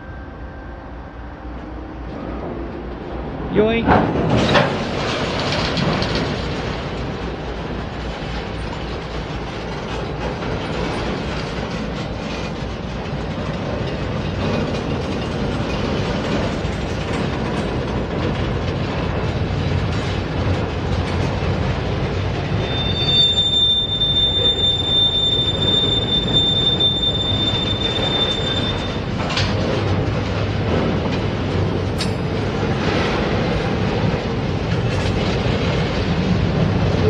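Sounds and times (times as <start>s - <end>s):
train wheels rumbling on rail: 0.0s - 37.0s
high-pitched wheel squeal: 22.6s - 29.1s.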